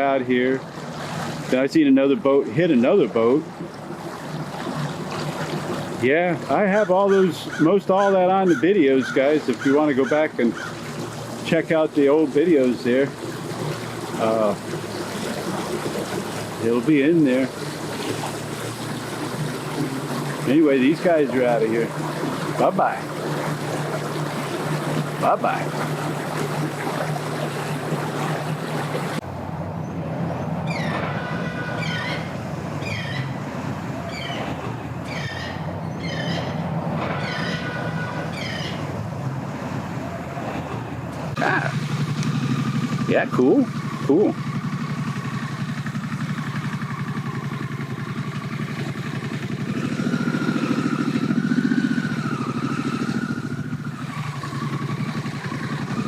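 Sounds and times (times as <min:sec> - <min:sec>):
boat motor humming: 0:00.0 - 0:56.0
engine running at low speed: 0:00.0 - 0:56.0
rushing water and wind: 0:00.0 - 0:56.0
bird chirping: 0:30.6 - 0:33.4, 0:34.1 - 0:36.6, 0:38.3 - 0:38.8.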